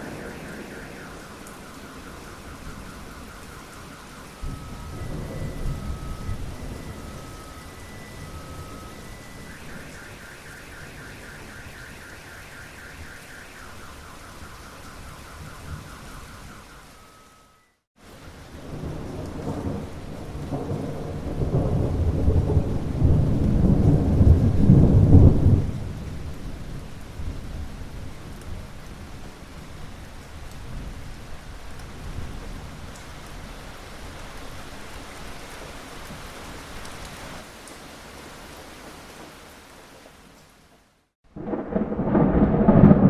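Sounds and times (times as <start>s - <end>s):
low thunder rumble: 0.0s - 12.3s, 18.5s - 30.0s, 41.3s - 43.0s
steady rain falling: 0.0s - 43.0s.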